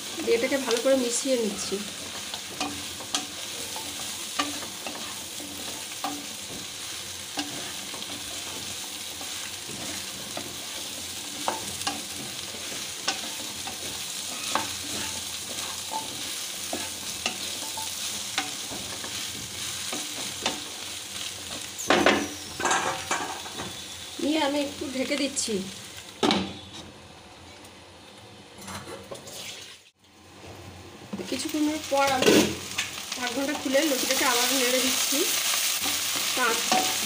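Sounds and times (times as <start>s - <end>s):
food sizzling in hot oil: 0.0s - 26.7s, 29.2s - 30.4s, 31.1s - 37.0s
spatula scraping a pan: 1.2s - 20.8s, 35.7s - 37.0s.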